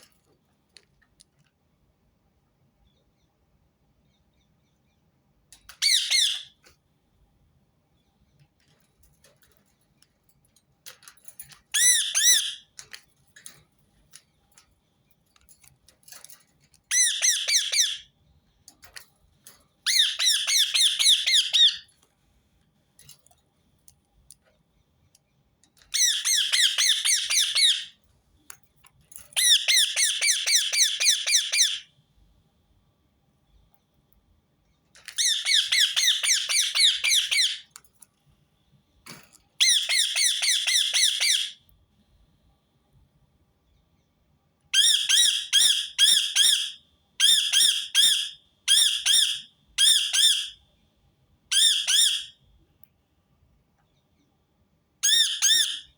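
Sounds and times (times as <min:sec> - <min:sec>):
parakeet screeching: 0:05.8 - 0:06.6, 0:11.8 - 0:12.6, 0:16.9 - 0:18.0, 0:19.9 - 0:21.8, 0:26.0 - 0:27.9, 0:29.4 - 0:31.8, 0:35.1 - 0:37.6, 0:39.6 - 0:41.6, 0:44.8 - 0:50.6, 0:51.5 - 0:52.3, 0:55.0 - 0:55.9.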